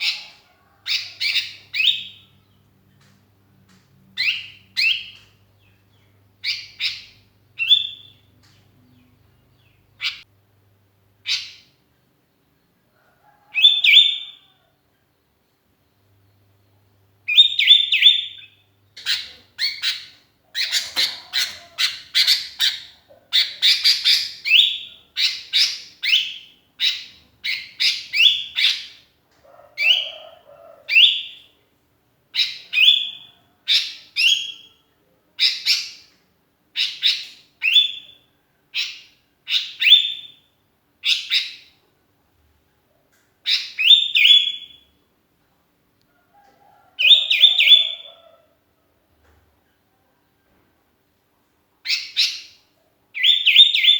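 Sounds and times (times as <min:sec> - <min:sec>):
bulbul chirping calls: 0:00.0 - 0:02.3, 0:17.3 - 0:29.0, 0:47.0 - 0:48.2, 0:51.8 - 0:52.6.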